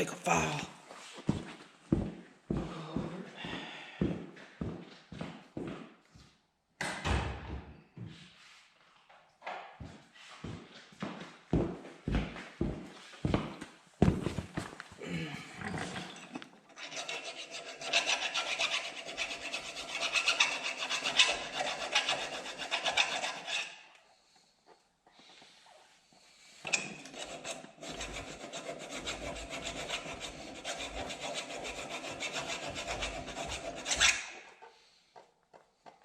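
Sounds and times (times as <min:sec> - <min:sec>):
hand file rasping on metal: 0:16.7 - 0:24.1, 0:26.7 - 0:34.7.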